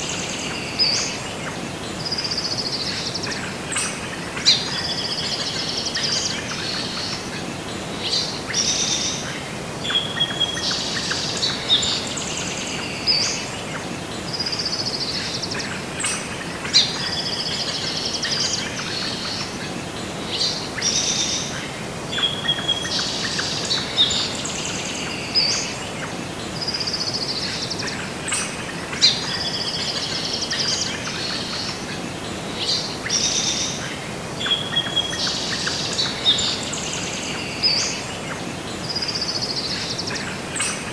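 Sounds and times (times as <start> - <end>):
background hiss: 0.0 - 40.9
birds chirping and singing: 0.0 - 40.9.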